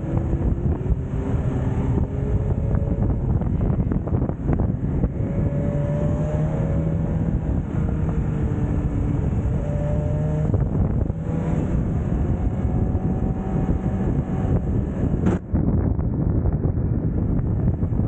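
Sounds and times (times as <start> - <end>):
motorcycle engine at speed: 0.0 - 18.0
wind rush on microphone: 0.0 - 18.0.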